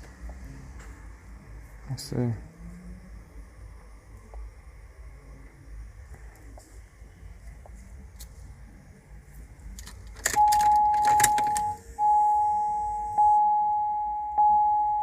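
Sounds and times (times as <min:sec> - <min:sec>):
keys rattling: 0:09.8 - 0:11.8
vehicle warning chime: 0:10.3 - 0:15.0.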